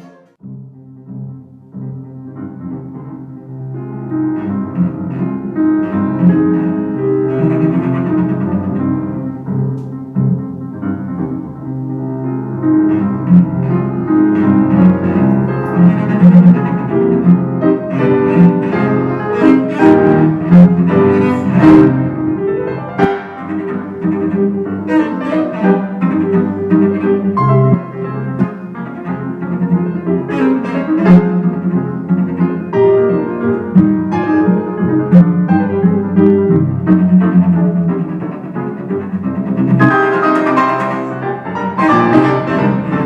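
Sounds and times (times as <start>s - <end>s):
bowed cello melody: 0.0s - 43.0s
piano accompaniment: 0.0s - 43.0s.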